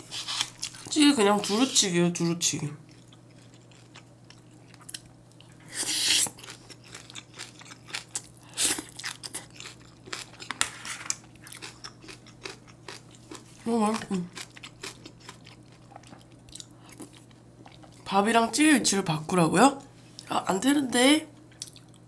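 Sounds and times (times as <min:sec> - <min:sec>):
person chewing and crunching: 0:00.0 - 0:01.6, 0:02.9 - 0:18.1, 0:21.5 - 0:22.0.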